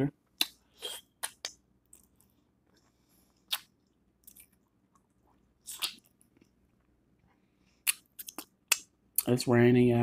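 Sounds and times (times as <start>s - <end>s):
person chewing: 0.3s - 9.3s
wet mouth smacks: 3.5s - 4.4s.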